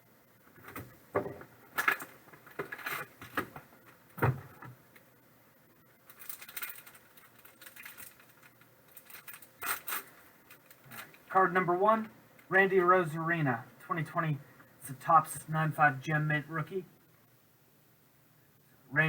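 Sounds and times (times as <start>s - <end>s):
crinkly packaging rustling: 1.7s - 4.3s, 6.0s - 11.4s.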